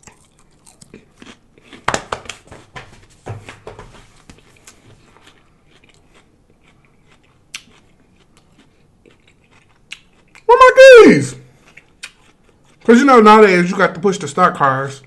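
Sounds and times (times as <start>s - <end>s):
crunchy chewing: 0.0s - 2.7s, 4.4s - 10.5s, 11.5s - 12.9s.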